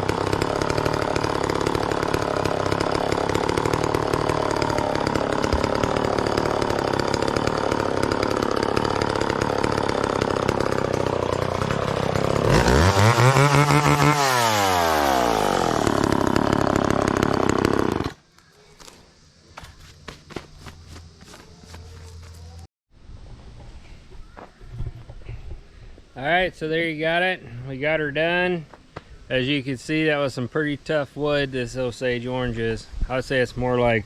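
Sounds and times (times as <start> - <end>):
chainsaw sawing wood: 0.0 - 18.2.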